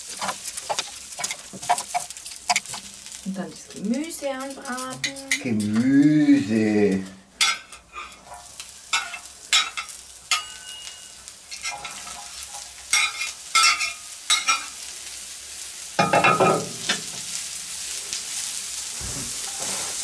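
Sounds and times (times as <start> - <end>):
metal spatula scraping and clicking: 0.0 - 3.2
vegetables sizzling on a grill plate: 0.0 - 20.0.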